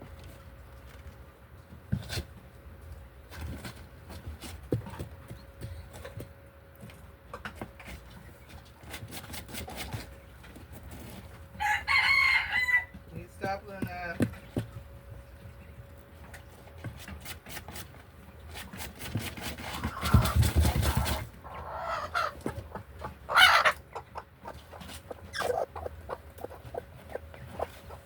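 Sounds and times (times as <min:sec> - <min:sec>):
chicken calling: 0:21.0 - 0:28.0.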